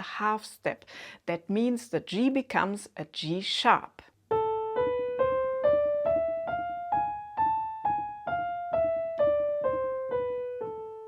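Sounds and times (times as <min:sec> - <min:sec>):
piano playing a scale: 0:04.3 - 0:11.0.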